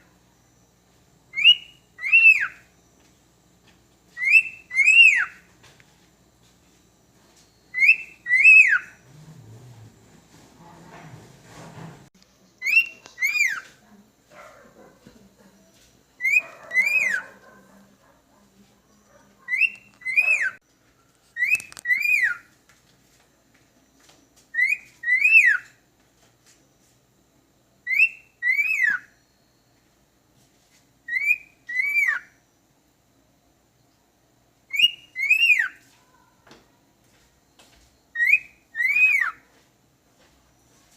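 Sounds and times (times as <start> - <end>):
cockatiel whistling: 1.3 - 2.7, 4.2 - 5.4, 7.7 - 9.0, 12.6 - 13.7, 16.2 - 17.3, 19.5 - 20.6, 21.4 - 22.5, 24.5 - 25.7, 27.8 - 29.1, 31.1 - 32.3, 34.7 - 35.8, 38.2 - 39.4.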